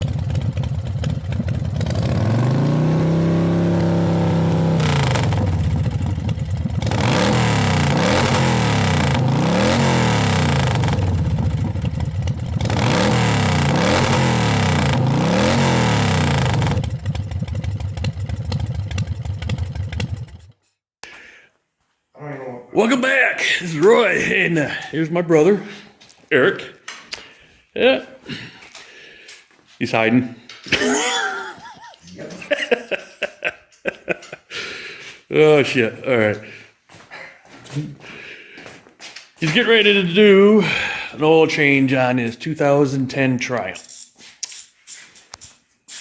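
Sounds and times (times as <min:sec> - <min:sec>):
motorcycle engine revving: 0:00.0 - 0:20.6.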